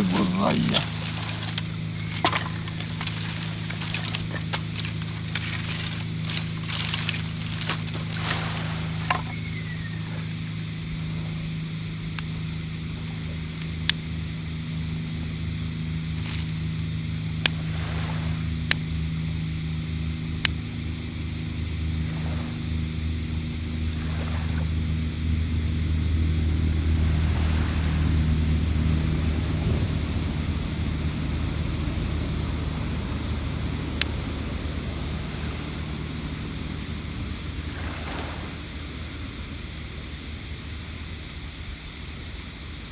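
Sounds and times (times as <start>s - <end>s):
surf washing: 0.0s - 10.3s, 17.6s - 18.6s, 23.7s - 40.9s
boat engine droning: 0.0s - 42.9s.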